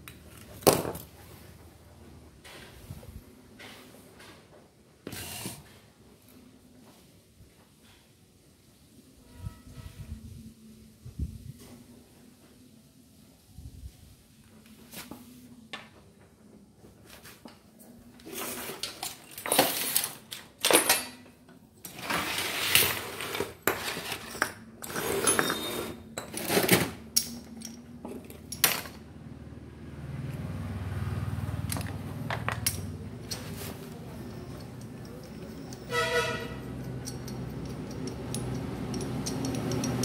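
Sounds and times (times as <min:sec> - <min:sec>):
metal tools clinking on workbench: 0:18.4 - 0:29.0, 0:31.7 - 0:40.0.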